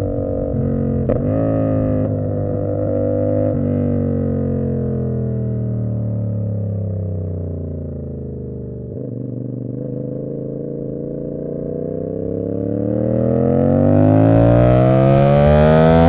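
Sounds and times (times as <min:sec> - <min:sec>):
motorcycle engine revving: 0:00.0 - 0:05.6, 0:06.3 - 0:16.0.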